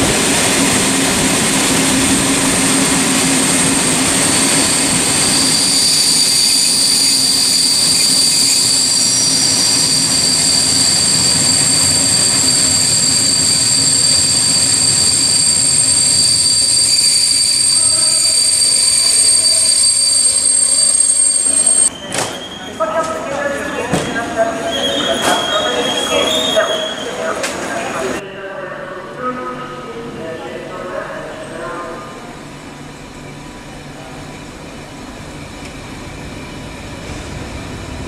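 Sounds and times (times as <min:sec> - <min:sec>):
high squealing tones: 0:04.3 - 0:22.8.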